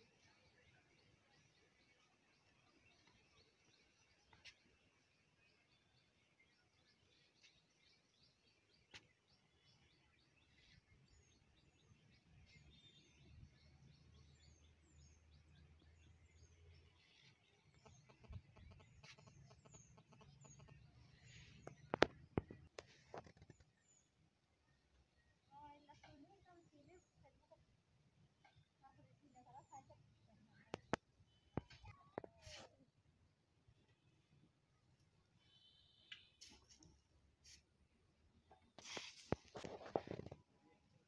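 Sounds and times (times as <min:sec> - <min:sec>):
birds chirping: 0:00.1 - 0:24.1.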